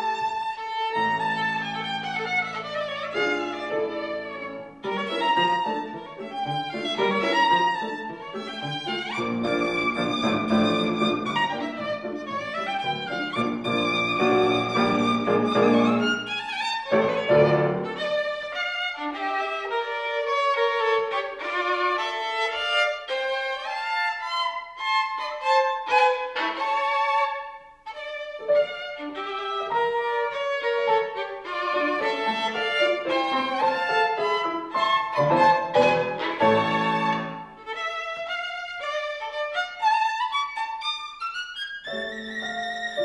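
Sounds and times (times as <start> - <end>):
piano accompaniment: 0.0 - 18.6, 28.4 - 37.8, 41.8 - 43.0
solo violin melody: 0.0 - 43.0.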